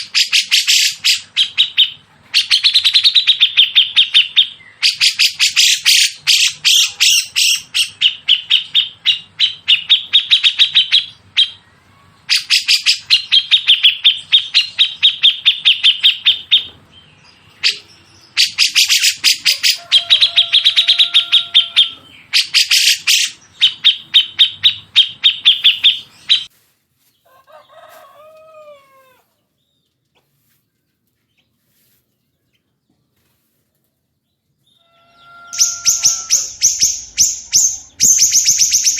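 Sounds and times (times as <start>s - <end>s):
lower descending bird calls: 0.0s - 26.5s, 34.6s - 38.9s
songbird rapid sharp notes: 35.5s - 38.9s.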